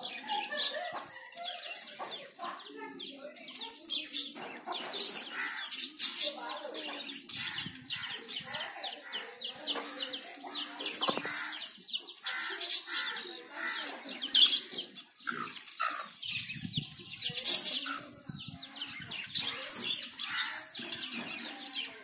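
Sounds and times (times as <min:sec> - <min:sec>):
small birds chirping: 0:00.0 - 0:22.0
low clucking calls: 0:10.9 - 0:14.0.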